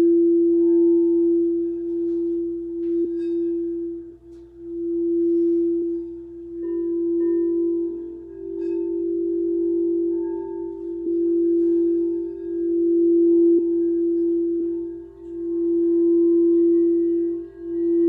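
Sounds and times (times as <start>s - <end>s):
higher singing bowl tone: 0.0s - 18.0s
low singing bowl tone: 0.0s - 18.0s.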